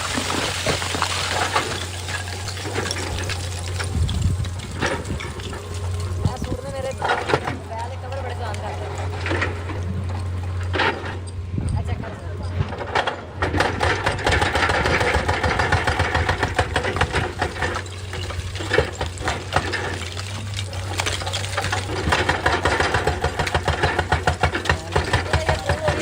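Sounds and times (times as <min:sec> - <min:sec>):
diesel engine running: 0:00.0 - 0:26.0
rapid metal knocks: 0:12.9 - 0:26.0.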